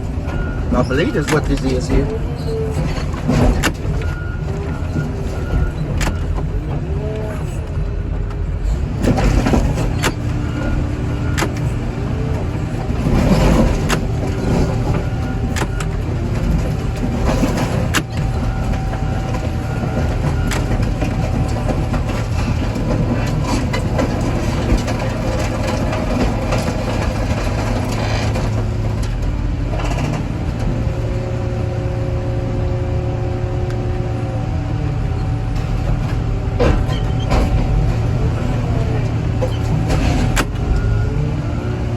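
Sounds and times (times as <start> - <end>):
heavy diesel machinery running: 0.0 - 41.9
car metal banging and crunching: 0.2 - 6.6, 9.0 - 30.3, 35.6 - 40.8.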